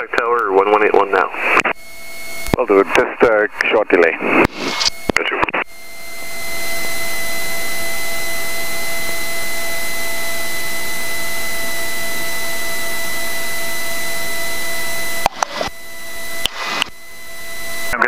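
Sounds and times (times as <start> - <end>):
radio hiss: 0.0 - 1.8, 2.4 - 7.2, 15.2 - 15.8, 16.4 - 17.0, 17.8 - 18.0
faint steady tones: 0.0 - 18.0.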